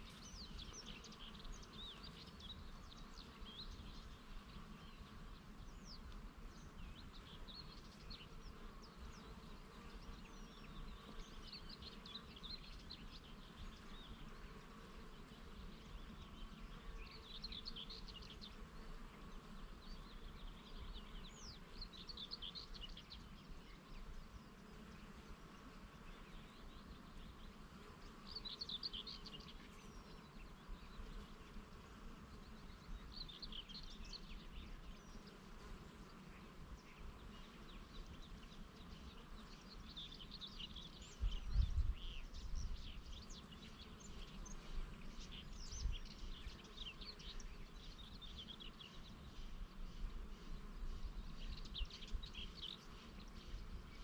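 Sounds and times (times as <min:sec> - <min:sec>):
songbirds twittering: 0:00.0 - 0:54.0
wind rumble on microphone: 0:41.0 - 0:43.4.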